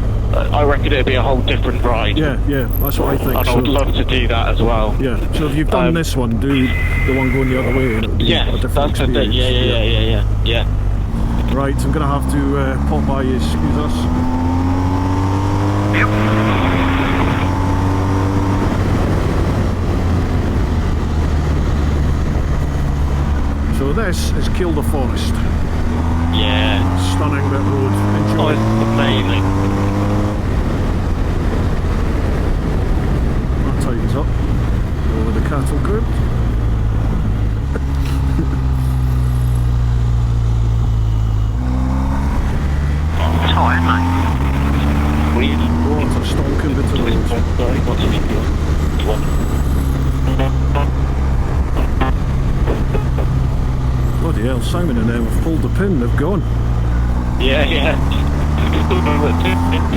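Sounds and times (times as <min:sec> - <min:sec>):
motorcycle engine accelerating: 0:00.0 - 0:59.9
wind rush on microphone: 0:14.0 - 0:23.7, 0:29.4 - 0:35.2, 0:36.0 - 0:38.8.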